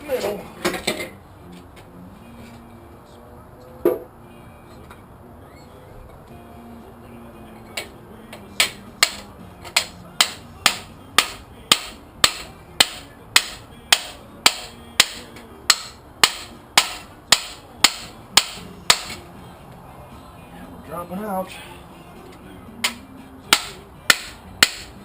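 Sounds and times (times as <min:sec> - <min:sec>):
hammer blows on metal: 0:07.7 - 0:19.3, 0:22.8 - 0:25.0.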